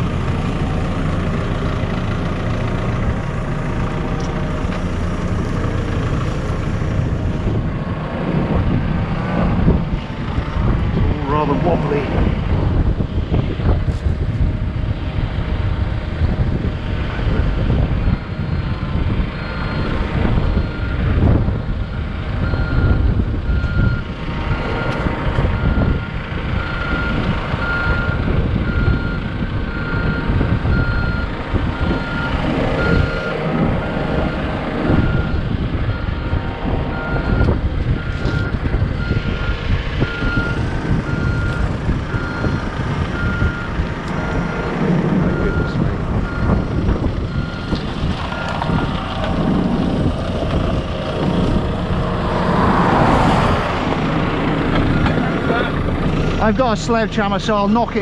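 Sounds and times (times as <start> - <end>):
heavy machine engine rumbling: 0.0 - 58.0
reversing alarm beeps: 17.4 - 21.2, 21.8 - 25.0, 25.6 - 33.4, 34.3 - 44.4, 47.3 - 47.8.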